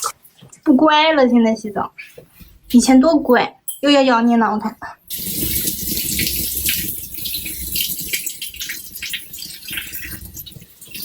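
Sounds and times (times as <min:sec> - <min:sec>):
running water splashing: 0:05.1 - 0:11.0.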